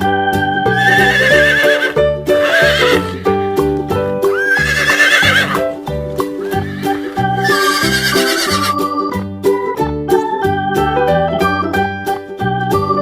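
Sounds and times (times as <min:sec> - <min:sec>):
cheerful keyboard music: 0:00.0 - 0:13.0
horse neighing: 0:00.7 - 0:03.2, 0:04.3 - 0:05.7, 0:06.4 - 0:08.8.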